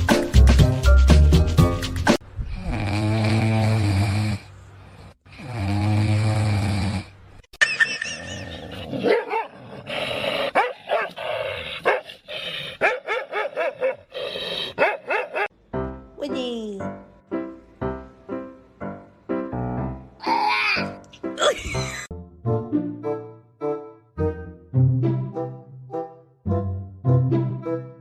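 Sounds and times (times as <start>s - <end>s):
dog barking and yipping: 9.0s - 9.6s, 10.5s - 11.2s, 11.8s - 12.1s, 12.8s - 14.1s, 14.8s - 15.5s.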